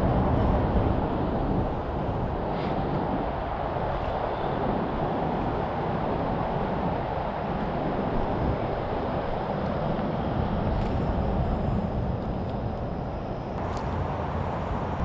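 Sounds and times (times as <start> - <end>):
distant freeway traffic drone: 0.0 - 15.0.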